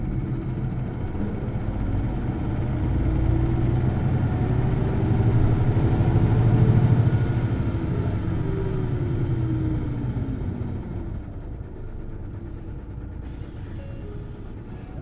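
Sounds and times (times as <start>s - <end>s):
bus engine winding down: 0.0s - 15.0s
bus low rumble: 0.0s - 15.0s.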